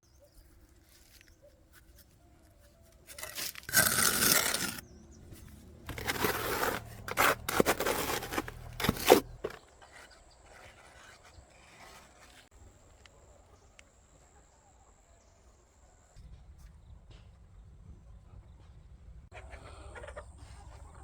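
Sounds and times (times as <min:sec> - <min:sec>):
scraping and crunching: 0:00.8 - 0:12.5.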